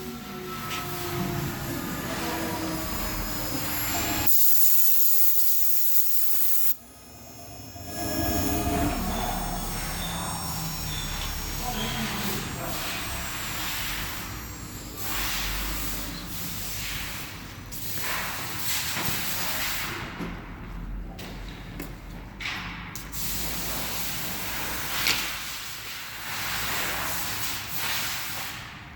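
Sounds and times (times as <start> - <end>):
cnc router hissing: 0.0 - 17.6.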